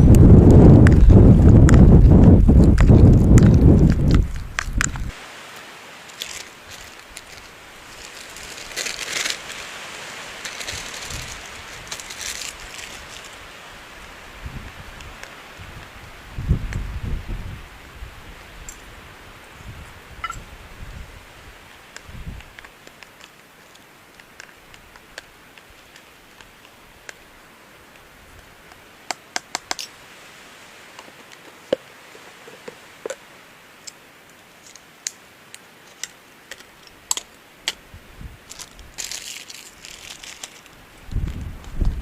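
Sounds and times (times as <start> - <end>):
crinkling rustle: 0.0 - 17.2, 21.3 - 42.0
sharp clicks and taps: 29.1 - 29.9.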